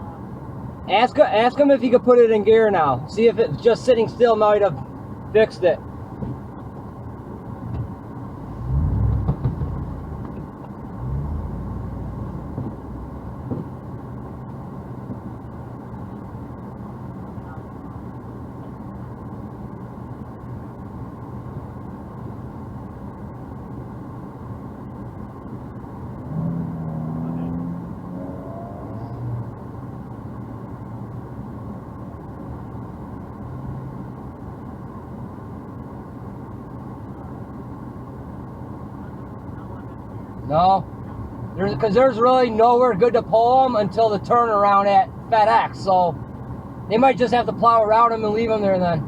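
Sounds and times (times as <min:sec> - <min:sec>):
vehicle engine idling: 0:00.0 - 0:49.0.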